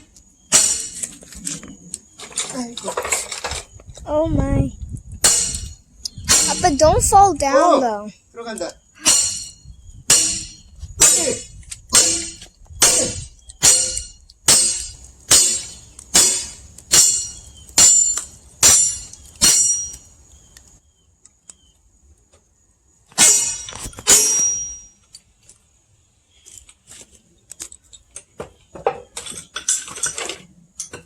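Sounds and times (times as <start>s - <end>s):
sledgehammer striking steel wedge: 0.5s - 1.1s, 5.2s - 6.6s, 9.0s - 20.0s, 23.2s - 24.9s.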